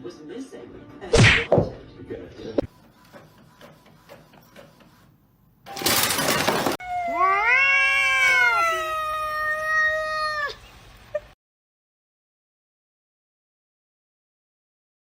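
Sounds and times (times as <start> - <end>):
cat meowing long: 6.8 - 10.6.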